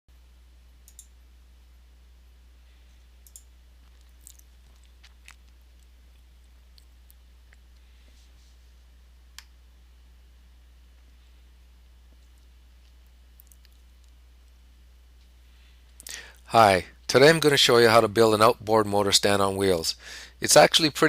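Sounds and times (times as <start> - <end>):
low hum: 0.1 - 20.3
faint sharp clicks: 0.8 - 1.2, 3.2 - 3.5.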